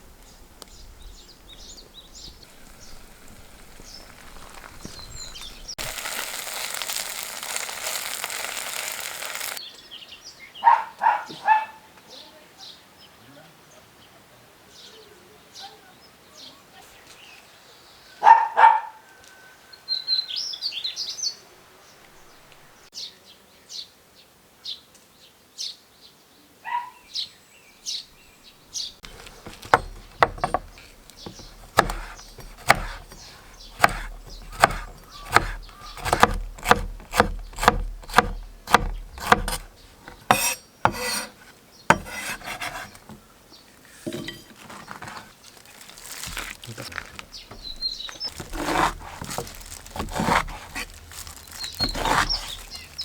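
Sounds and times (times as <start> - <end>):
birds calling and chirping: 0.2 - 5.8, 27.0 - 45.3, 45.9 - 53.0
knife chopping on wooden board: 29.0 - 43.2, 47.5 - 53.0.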